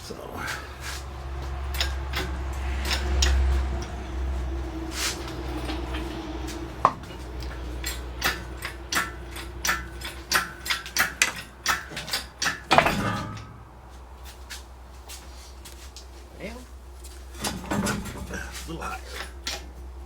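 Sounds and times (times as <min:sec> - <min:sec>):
steady low hum: 0:00.0 - 0:20.0
metal tools clinking: 0:01.5 - 0:04.2, 0:05.2 - 0:13.7, 0:17.3 - 0:19.8.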